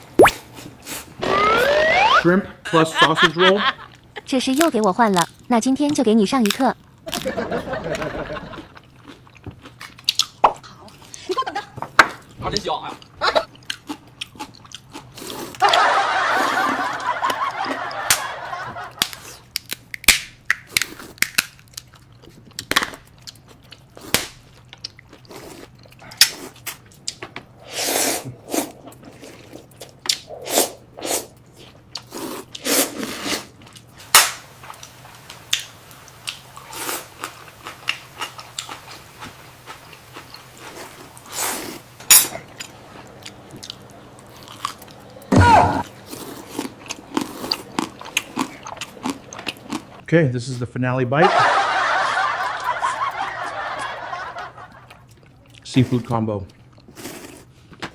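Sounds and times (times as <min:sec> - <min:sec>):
crunching and chewing: 0:08.5 - 0:11.3, 0:12.2 - 0:15.8, 0:18.9 - 0:27.6, 0:28.3 - 0:30.3, 0:31.3 - 0:50.0, 0:54.6 - 0:57.9.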